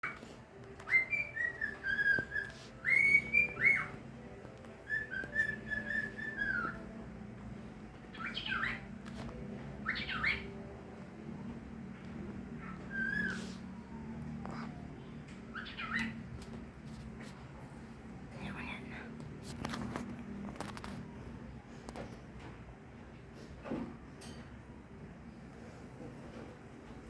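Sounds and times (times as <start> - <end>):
pet bird whistling: 0.0 - 7.0, 8.1 - 10.8, 12.6 - 14.7, 15.5 - 16.4
bird chirping quickly: 0.8 - 4.0, 8.1 - 8.9, 9.8 - 10.7, 15.5 - 16.3.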